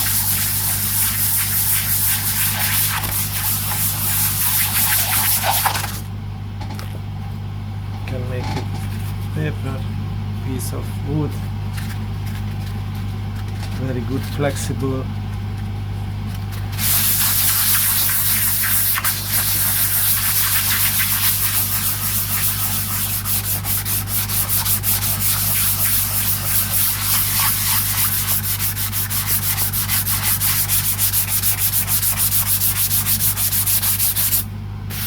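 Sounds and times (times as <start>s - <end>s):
sandpaper sanding wood: 0.0s - 6.0s, 16.8s - 35.0s
steady low hum: 0.0s - 35.0s.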